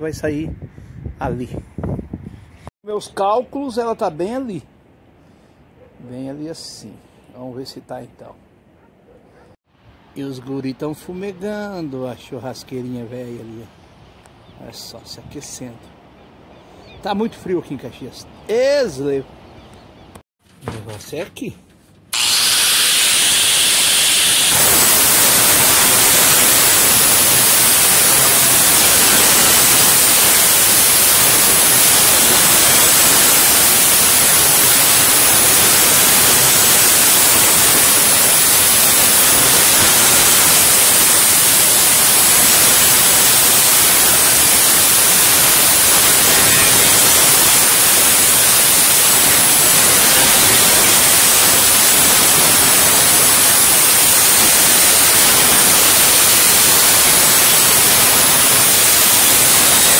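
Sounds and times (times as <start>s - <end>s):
loud static hiss: 22.1s - 59.9s.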